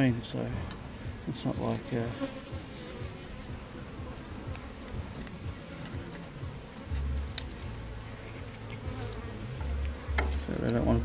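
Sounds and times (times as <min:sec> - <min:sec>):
honeybees buzzing: 0:00.0 - 0:11.0
faint clicks: 0:00.6 - 0:00.9.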